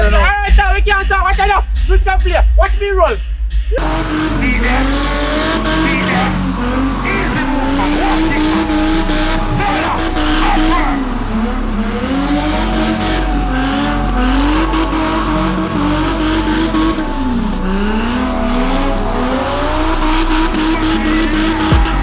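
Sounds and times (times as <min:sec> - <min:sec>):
car engine revving hard: 0:03.8 - 0:22.0.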